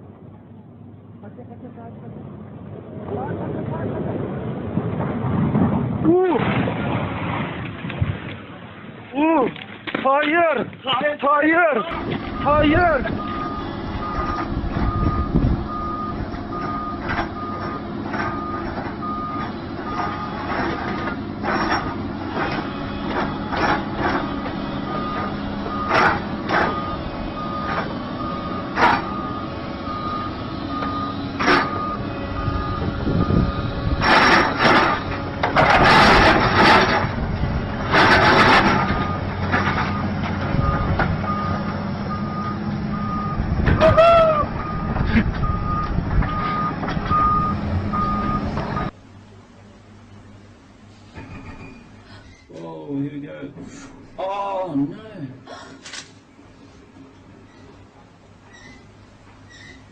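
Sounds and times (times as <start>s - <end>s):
heavy vehicle engine running: 11.8s - 52.5s
reversing alarm beeping: 11.9s - 20.8s, 22.4s - 35.1s, 38.0s - 48.9s.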